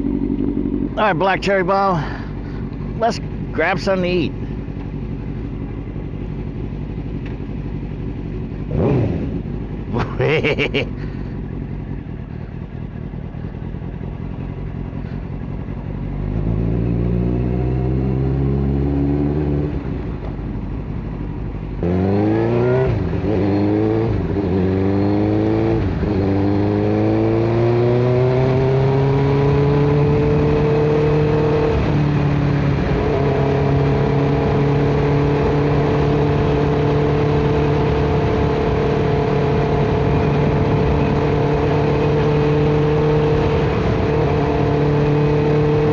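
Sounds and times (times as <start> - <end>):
motorcycle engine upshifting: 0.0 - 1.0.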